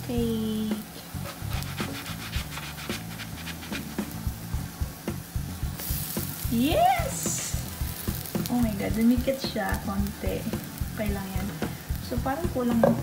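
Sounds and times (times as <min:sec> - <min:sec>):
pancake sizzling: 0:00.2 - 0:13.0
spatula scraping a frying pan: 0:01.2 - 0:04.2.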